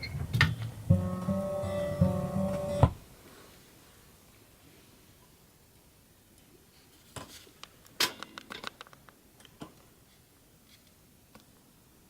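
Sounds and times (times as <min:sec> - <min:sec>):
small clicks and knocks: 0:07.2 - 0:09.9.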